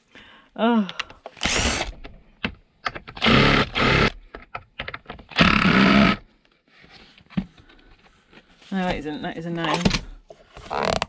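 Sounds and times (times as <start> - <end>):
cordless drill bursts: 1.4 - 2.0, 3.2 - 4.2, 5.3 - 6.2
drill bit clicking on wood: 1.4 - 2.1, 3.1 - 4.2, 5.3 - 6.2.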